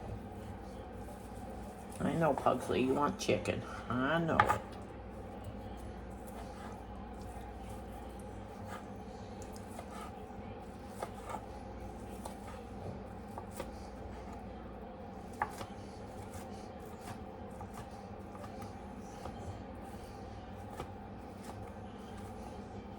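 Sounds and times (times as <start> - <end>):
steady low hum: 0.0 - 22.9
knife chopping on cutting board: 4.3 - 4.7, 9.5 - 10.2, 10.8 - 11.5, 15.3 - 18.6.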